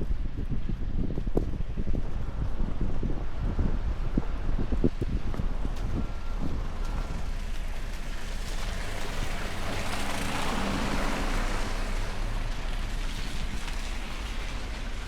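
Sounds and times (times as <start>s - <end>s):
wind buffeting microphone: 0.0s - 15.0s
vehicle driving past: 6.6s - 15.0s.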